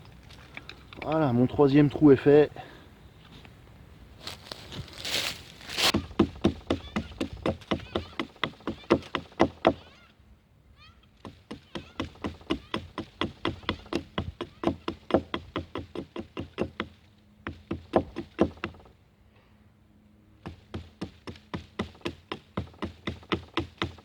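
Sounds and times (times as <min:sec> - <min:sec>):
blade chopping into wood: 0:05.7 - 0:09.8, 0:17.7 - 0:18.8, 0:20.5 - 0:24.0.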